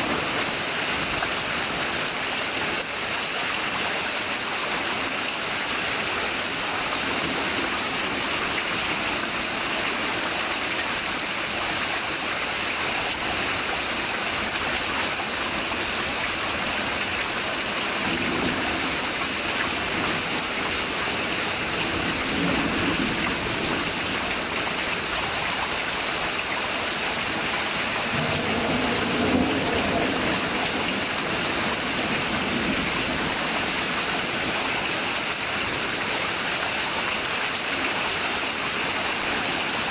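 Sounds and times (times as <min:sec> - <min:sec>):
heavy rain pouring: 0:00.0 - 0:39.9
thunder rumbling: 0:05.7 - 0:11.8, 0:13.2 - 0:26.6, 0:27.2 - 0:34.7.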